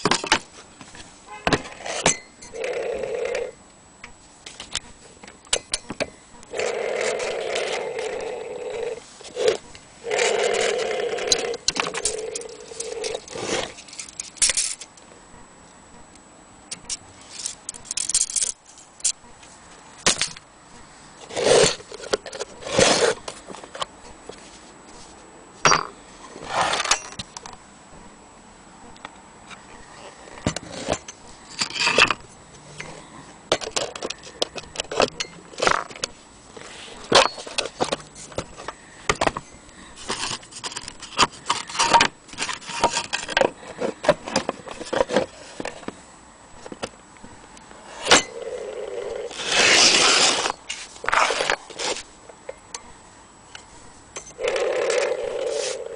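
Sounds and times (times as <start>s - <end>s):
metal objects clinking and rattling: 8.8s - 14.9s, 17.3s - 19.1s, 30.4s - 32.2s, 37.0s - 38.4s.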